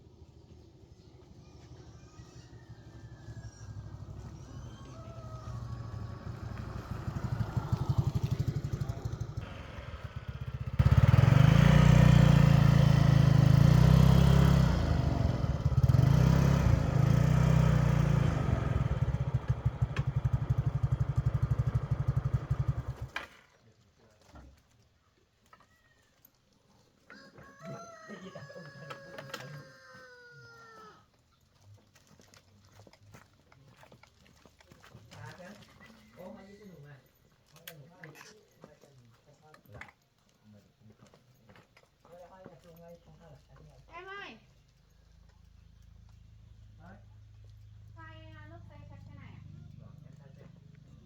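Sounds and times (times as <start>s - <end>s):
motorcycle engine running: 2.4s - 23.2s, 45.2s - 51.0s.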